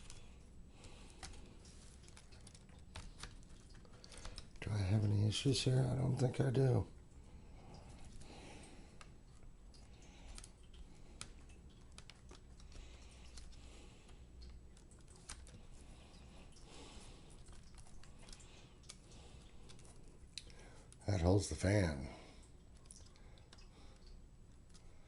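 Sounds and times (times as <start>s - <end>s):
plastic parts clicking and tapping: 1.1s - 5.2s, 9.8s - 15.8s.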